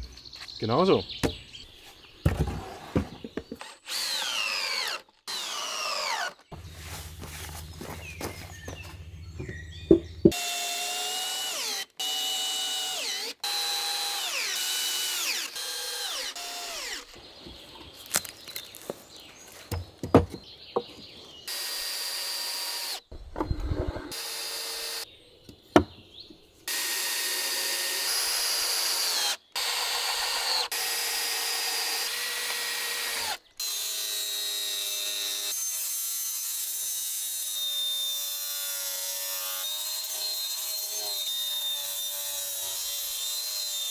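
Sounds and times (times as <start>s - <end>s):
power drill driving screws: 3.6s - 6.4s, 10.3s - 17.2s, 21.5s - 23.0s, 24.0s - 25.0s, 26.7s - 43.9s
wood knocks: 9.4s - 10.4s, 19.7s - 21.0s.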